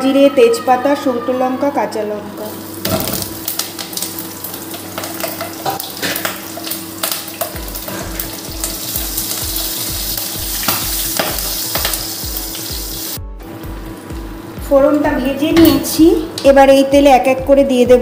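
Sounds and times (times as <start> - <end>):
spices sizzling in hot oil: 2.4 - 16.4
oil crackles: 2.5 - 13.2.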